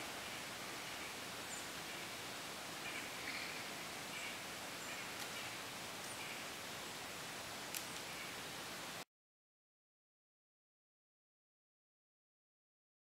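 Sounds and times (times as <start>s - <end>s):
steady outdoor hiss: 0.0s - 9.1s
faint short bird calls: 2.8s - 6.5s.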